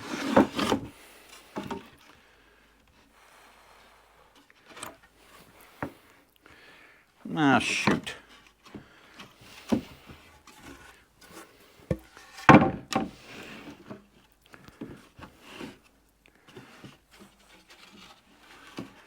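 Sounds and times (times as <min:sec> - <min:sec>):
wooden boards knocking and scraping: 0:00.0 - 0:00.9, 0:11.8 - 0:13.9.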